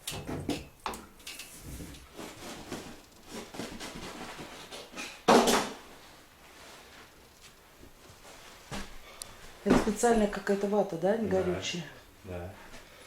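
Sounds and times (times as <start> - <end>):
soft rustling: 5.9 - 13.0.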